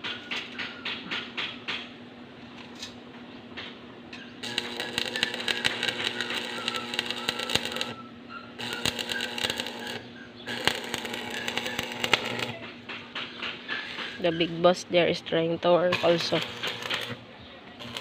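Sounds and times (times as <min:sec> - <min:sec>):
steady low hum: 0:00.1 - 0:18.0
welding arc crackling: 0:04.4 - 0:08.0, 0:08.6 - 0:12.9, 0:15.7 - 0:17.2, 0:17.8 - 0:18.0.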